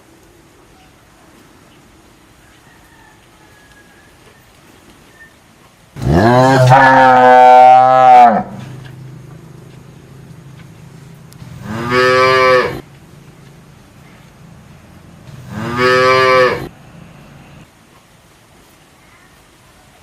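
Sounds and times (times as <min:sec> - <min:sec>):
cow mooing: 0:06.0 - 0:12.8, 0:15.3 - 0:16.7.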